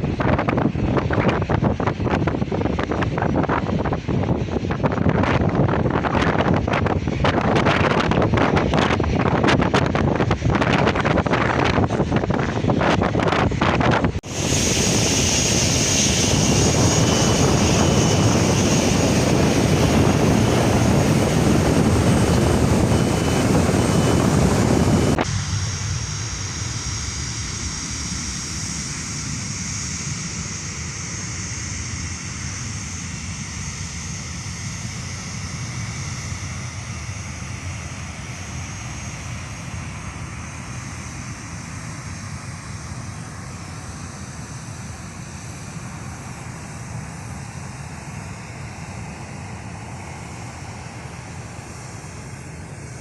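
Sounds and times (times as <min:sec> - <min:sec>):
jet engines roaring: 0:00.0 - 0:53.0.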